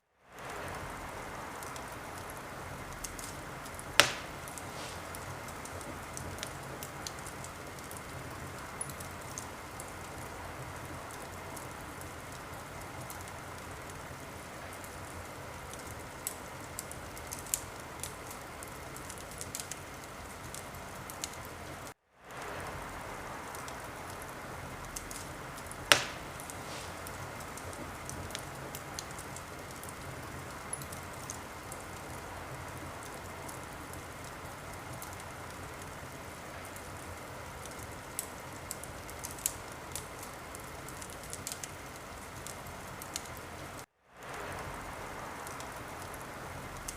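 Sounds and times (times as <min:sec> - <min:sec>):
wood fire crackling: 0:00.2 - 0:46.9
sharp pop of fire: 0:04.0 - 0:05.9, 0:25.0 - 0:29.1.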